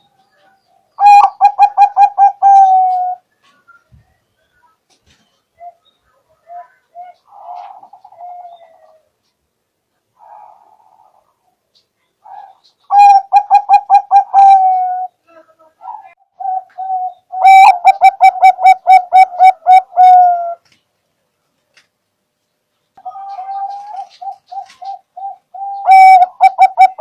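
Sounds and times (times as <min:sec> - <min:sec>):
dove cooing: 0:01.0 - 0:03.3, 0:05.6 - 0:09.3, 0:10.2 - 0:11.4, 0:12.2 - 0:15.2, 0:15.8 - 0:20.7, 0:23.0 - 0:27.0.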